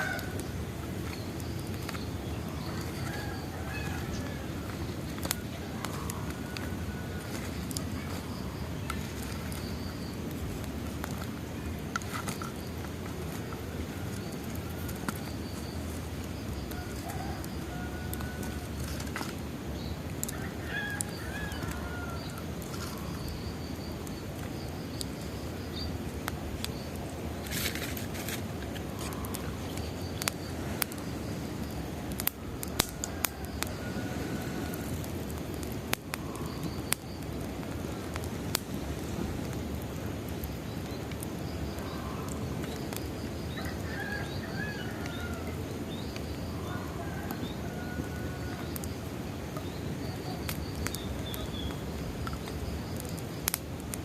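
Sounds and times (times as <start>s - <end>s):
birds chirping: 0.0s - 27.8s
wood bonfire crackling: 0.0s - 54.0s.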